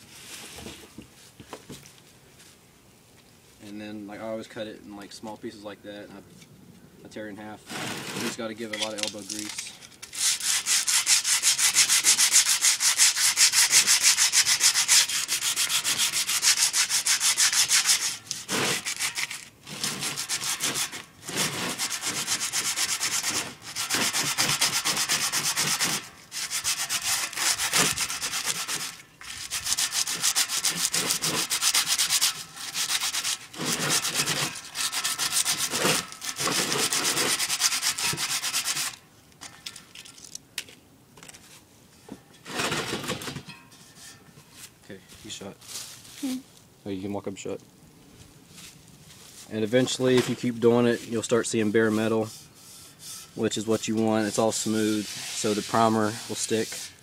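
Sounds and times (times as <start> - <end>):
sandpaper scrubbing rusty metal: 7.6 - 39.0, 49.2 - 57.0.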